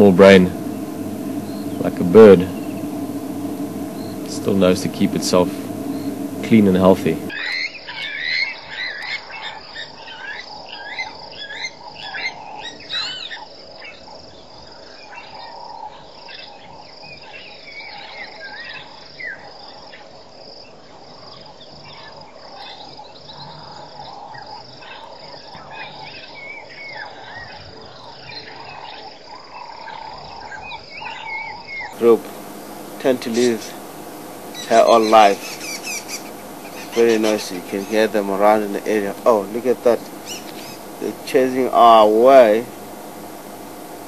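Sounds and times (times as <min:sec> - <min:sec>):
crickets and insects droning: 0:00.0 - 0:44.0
birds calling: 0:32.0 - 0:44.0.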